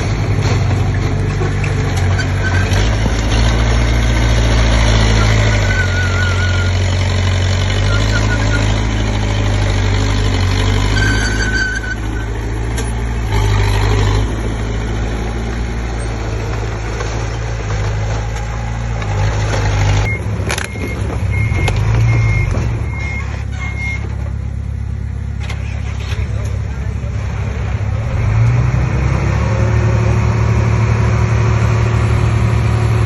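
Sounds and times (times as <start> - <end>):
bulldozer diesel engine running: 0.0 - 33.0
reversing alarm beeping: 20.0 - 24.0.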